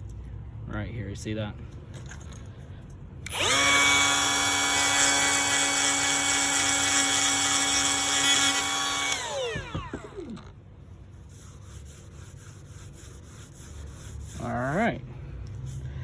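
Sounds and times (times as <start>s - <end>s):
rotary tool high whine: 3.2s - 10.6s
rotary tool spinning down: 3.3s - 10.5s.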